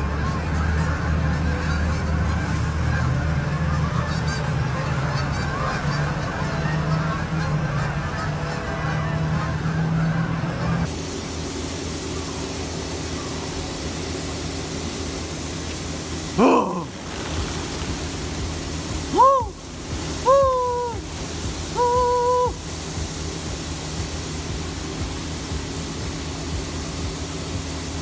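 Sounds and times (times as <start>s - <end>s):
loud animal calls: 0.0s - 10.9s, 16.4s - 22.9s
steady rushing noise: 0.0s - 28.0s.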